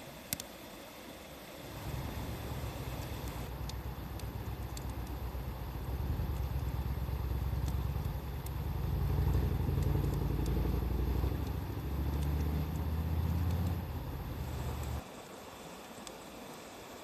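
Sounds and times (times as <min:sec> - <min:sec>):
wood fire crackling: 0:01.5 - 0:15.0
low rumble: 0:01.7 - 0:15.0.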